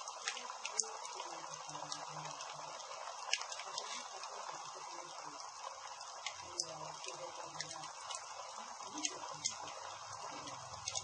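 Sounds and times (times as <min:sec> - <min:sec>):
campfire crackling: 0:00.0 - 0:11.0
sharp pops of burning wood: 0:03.2 - 0:04.1.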